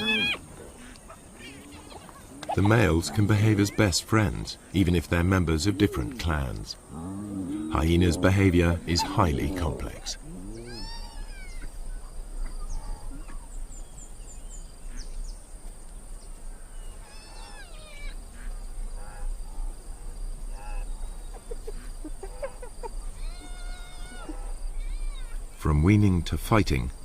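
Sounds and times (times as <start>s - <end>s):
hyenas whining and squealing: 0.0s - 0.5s, 7.0s - 11.8s, 17.0s - 18.2s, 23.2s - 25.4s
high insect drone: 0.0s - 26.0s.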